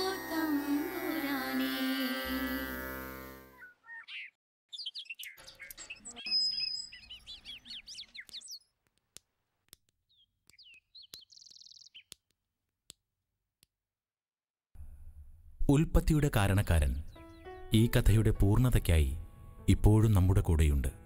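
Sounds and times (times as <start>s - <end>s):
small birds chirping: 3.4s - 13.7s, 16.4s - 18.2s
sharp clicks: 7.7s - 13.8s.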